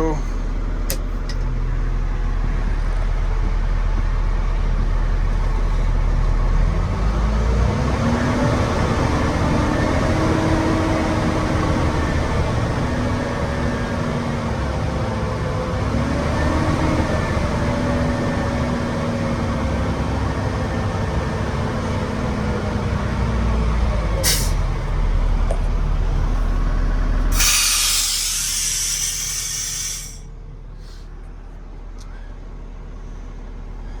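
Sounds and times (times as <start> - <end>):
diesel truck engine running: 0.0 - 34.0
loud blast of released air: 24.2 - 24.6, 27.3 - 30.2
air hiss: 27.3 - 30.2.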